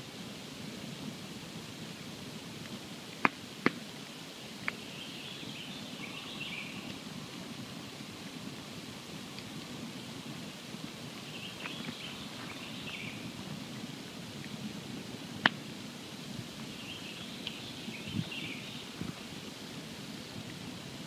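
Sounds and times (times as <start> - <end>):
campfire hissing and crackling: 0.0 - 21.0
faint high twittering calls: 4.3 - 7.2, 11.2 - 13.4, 16.6 - 19.2.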